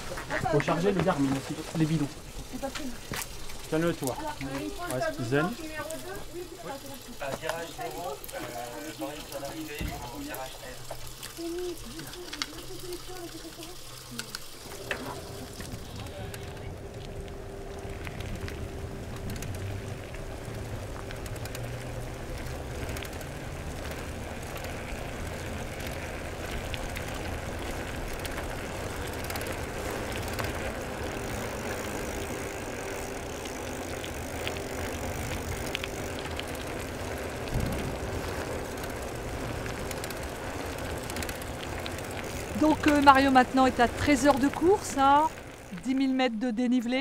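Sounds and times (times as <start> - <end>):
faint constant hum: 0.0 - 47.0
road noise: 0.0 - 47.0
vehicle engine running steadily: 14.7 - 43.1.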